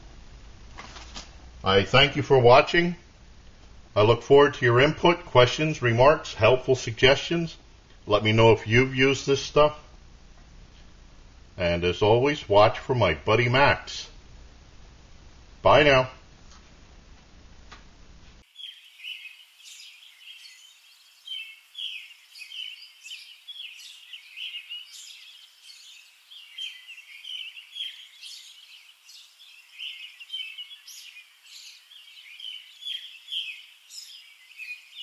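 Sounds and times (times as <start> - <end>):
small birds chirping: 18.4 - 35.0.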